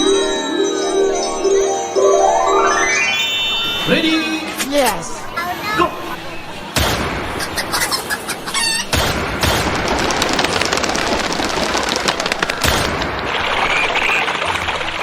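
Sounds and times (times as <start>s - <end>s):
audience clapping: 9.5s - 15.0s.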